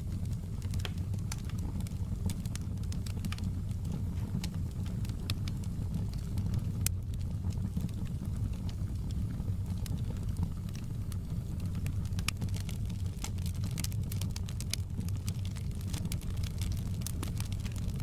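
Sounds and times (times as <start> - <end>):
fire crackles and pops: 0.0 - 18.0
fire flames rumbling: 0.0 - 18.0.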